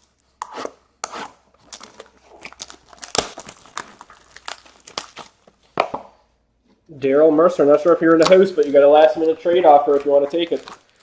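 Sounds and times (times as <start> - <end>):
plastic wrapping crinkling and tearing: 1.5 - 5.7, 7.7 - 11.0.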